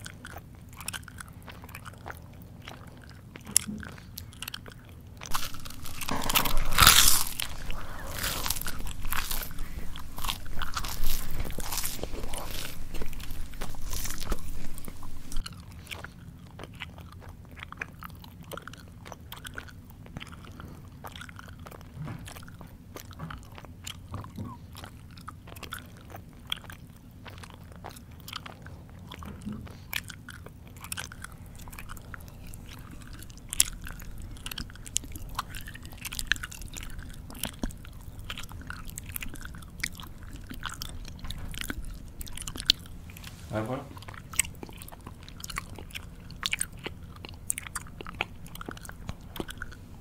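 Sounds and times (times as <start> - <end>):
crunchy food chewing: 0.0 - 50.0.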